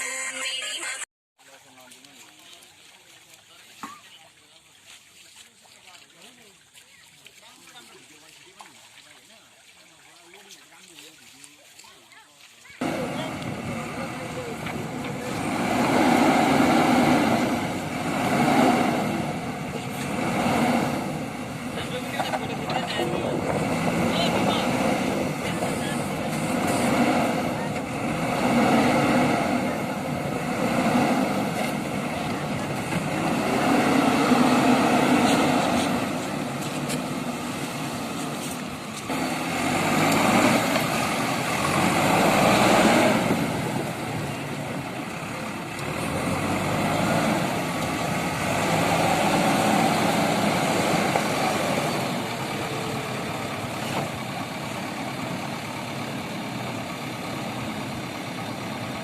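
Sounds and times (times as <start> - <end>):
diesel engine running: 12.8 - 59.0.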